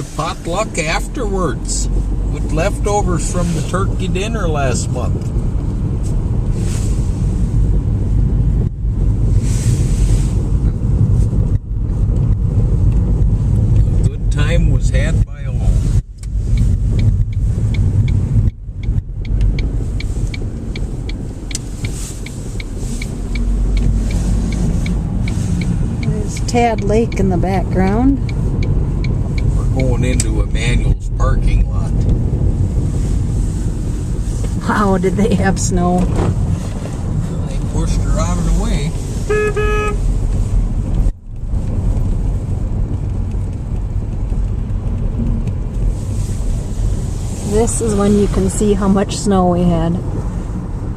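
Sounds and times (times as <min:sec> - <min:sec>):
car cabin engine and tyre rumble: 0:00.0 - 0:50.9
turn signal ticking: 0:00.0 - 0:50.9.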